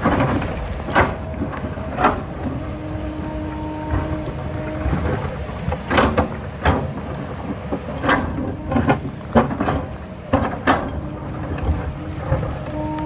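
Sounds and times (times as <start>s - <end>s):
sharp metallic clanks and scrapes: 0.0s - 2.7s
diesel machine running: 0.0s - 13.0s.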